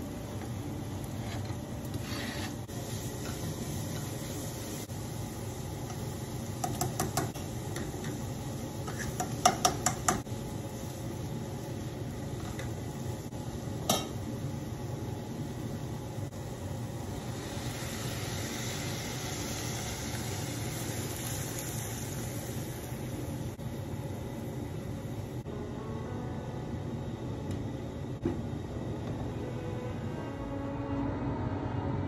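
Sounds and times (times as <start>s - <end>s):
steady hiss: 2.6s - 25.5s.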